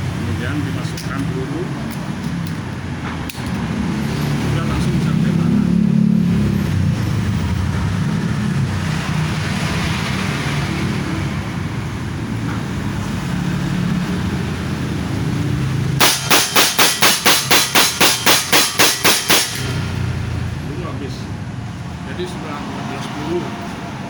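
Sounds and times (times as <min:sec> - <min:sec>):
air rifle rapid shots: 0:16.0 - 0:19.8.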